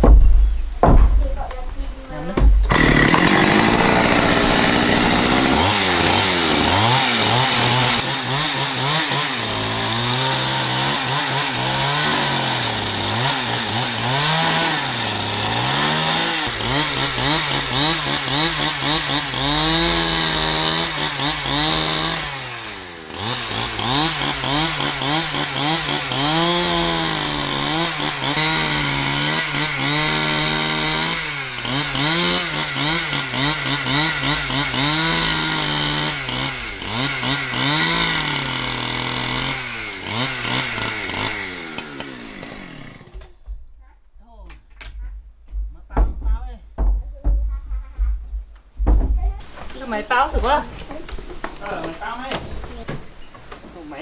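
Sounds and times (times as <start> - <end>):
chainsaw cutting wood: 0.0 - 43.6, 49.4 - 54.0.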